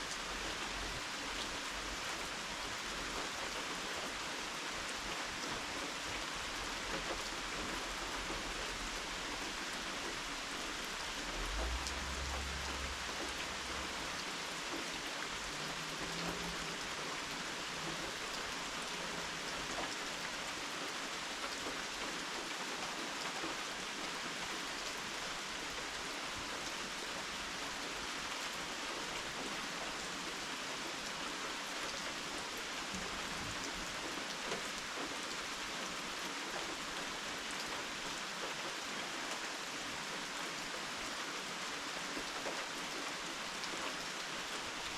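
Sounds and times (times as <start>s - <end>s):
rain pattering: 0.0s - 44.9s
low rumble: 10.8s - 14.7s.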